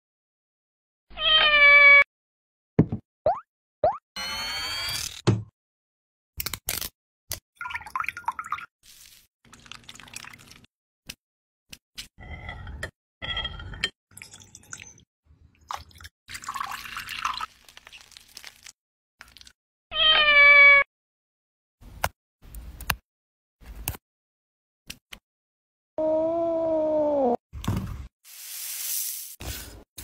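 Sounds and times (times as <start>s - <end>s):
cat meowing: 1.1s - 2.0s, 19.9s - 20.9s.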